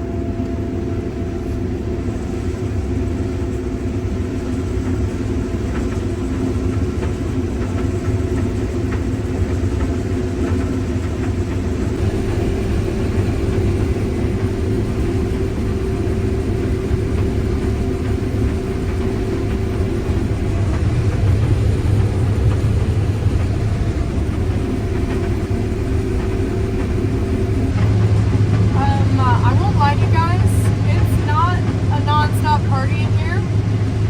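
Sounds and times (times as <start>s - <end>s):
combine harvester droning: 8.3s - 34.0s
steady hum: 10.5s - 34.0s.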